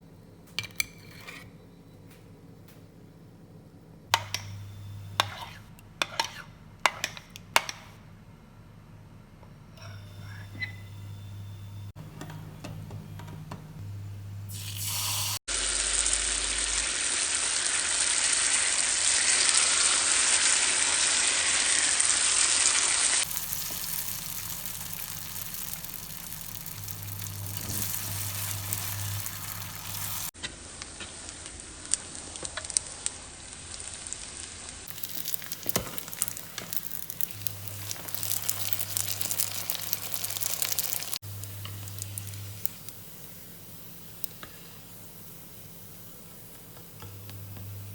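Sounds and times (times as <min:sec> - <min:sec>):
food sizzling in hot oil: 0:14.5 - 0:30.3, 0:31.1 - 0:45.9
oil crackling and popping: 0:23.2 - 0:43.0.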